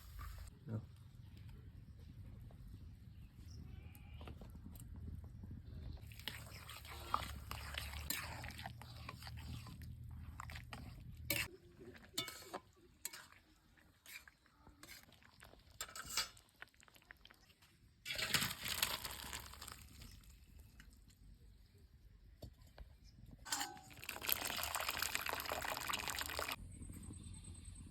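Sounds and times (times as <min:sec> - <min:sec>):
food crackling and scraping: 0:04.1 - 0:21.3, 0:22.7 - 0:26.6
low hum: 0:26.6 - 0:27.9.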